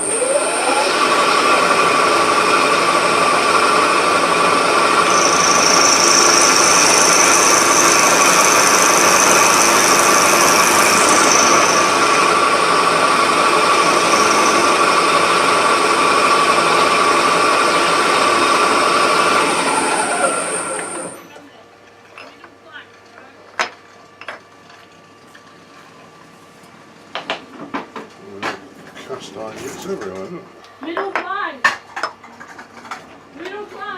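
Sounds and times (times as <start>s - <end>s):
milling machine whining: 0.0s - 21.5s.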